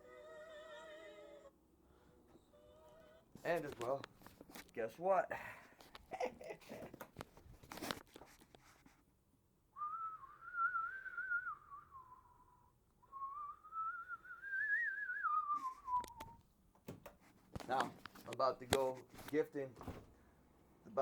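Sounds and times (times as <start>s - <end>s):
person whistling: 9.8s - 16.4s.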